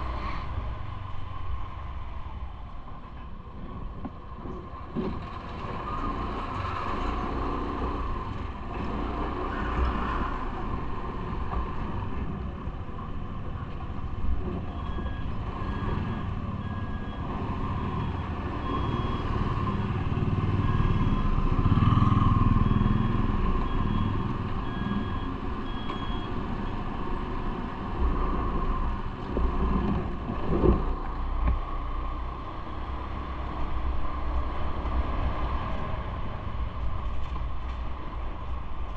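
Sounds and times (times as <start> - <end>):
vehicle running noise: 0.0 - 38.9.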